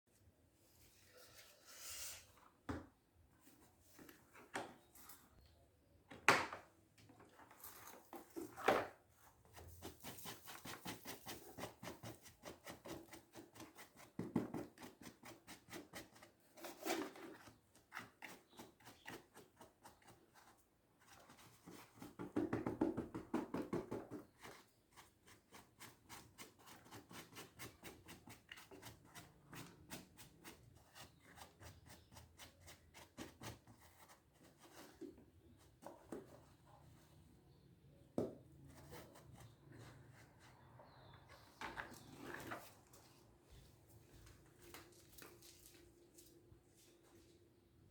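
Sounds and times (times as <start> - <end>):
vacuum cleaner parts knocking: 22.2 - 24.3.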